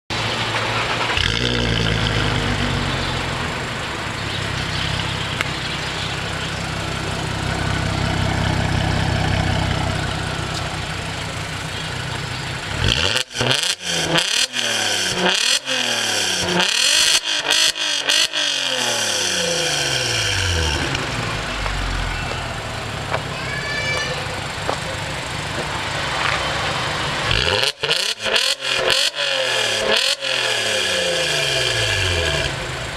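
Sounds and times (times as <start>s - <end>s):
car engine idling: 0.1s - 16.8s, 18.1s - 27.9s, 30.2s - 32.9s
sharp throttle revs: 0.6s - 3.5s, 12.7s - 22.6s, 26.1s - 32.9s.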